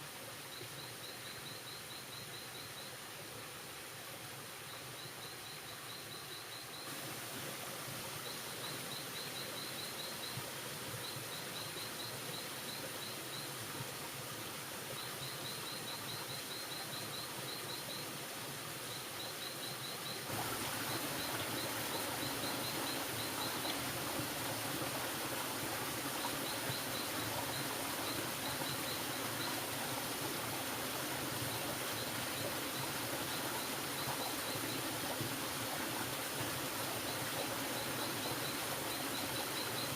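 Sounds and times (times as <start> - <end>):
steady hiss: 0.0 - 39.9
insect chirping in rapid pulses: 18.9 - 24.6.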